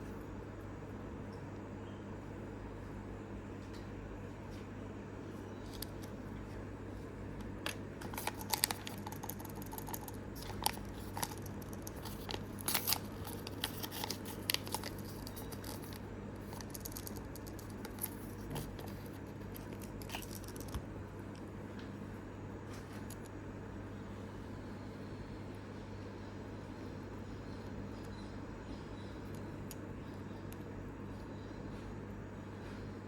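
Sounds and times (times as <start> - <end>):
low steady hum: 0.0 - 33.0
plastic packaging crinkling: 8.0 - 20.8.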